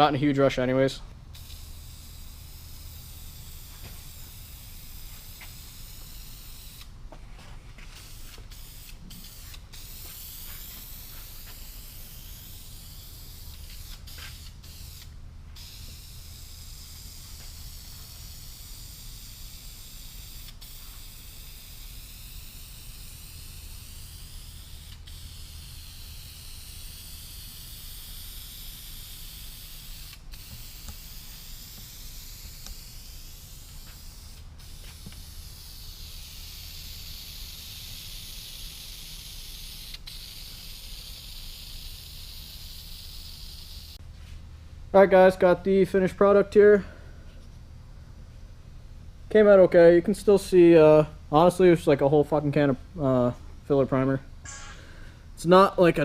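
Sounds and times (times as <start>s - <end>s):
aerosol can spraying: 1.3s - 6.9s, 7.9s - 44.0s
low steady hum: 44.0s - 56.0s.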